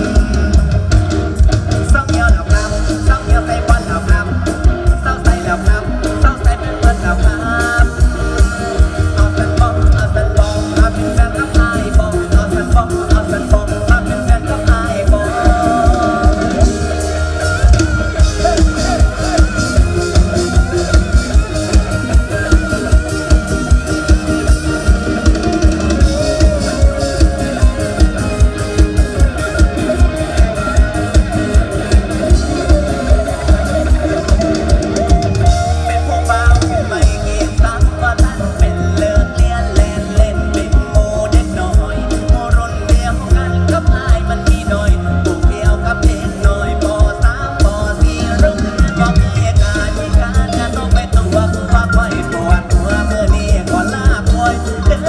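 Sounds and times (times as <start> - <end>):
live band music: 0.0 - 55.0
wavering melody line: 2.4 - 43.6.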